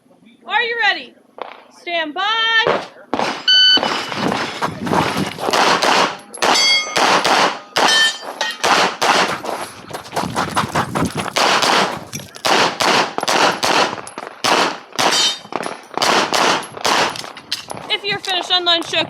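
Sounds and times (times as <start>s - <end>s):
handgun shots: 2.6s - 4.2s, 5.4s - 9.3s, 11.4s - 17.7s
metallic rings: 6.2s - 7.0s, 7.9s - 8.6s, 15.2s - 16.0s.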